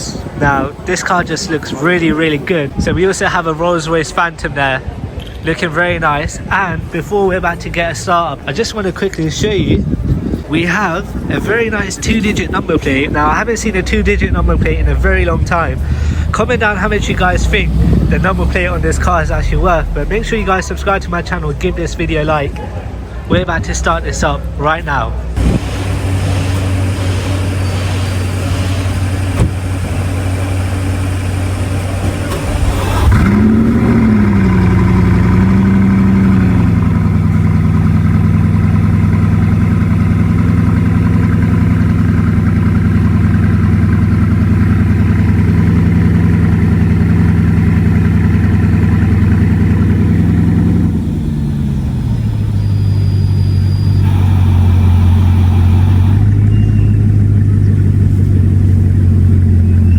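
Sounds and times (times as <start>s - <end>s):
car engine starting and idling: 0.0s - 59.9s
steady low hum: 6.8s - 35.6s, 42.1s - 59.9s.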